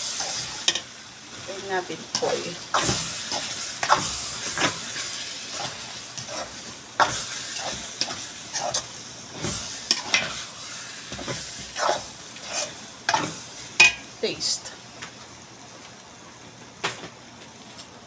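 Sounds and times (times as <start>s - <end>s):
utensil scraping sauce in a pan: 0.0s - 0.8s, 2.1s - 14.0s
faint sizzle: 0.0s - 18.0s.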